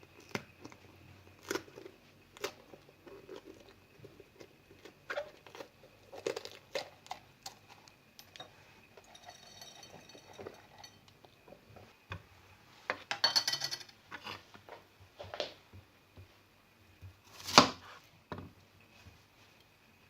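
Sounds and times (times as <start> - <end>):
dishes and utensils clinking: 8.2 - 11.2, 13.0 - 14.3.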